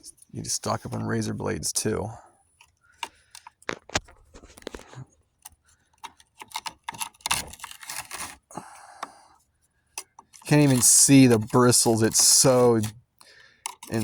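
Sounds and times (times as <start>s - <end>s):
knife scraping hair from brush roll: 6.4s - 8.5s, 10.0s - 12.9s, 13.7s - 14.0s.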